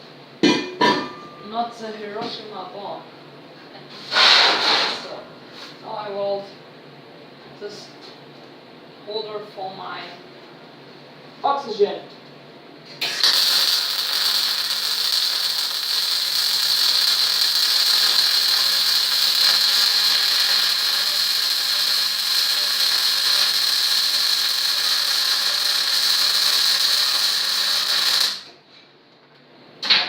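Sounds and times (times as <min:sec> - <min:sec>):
welder arc sizzling: 0:13.0 - 0:28.5.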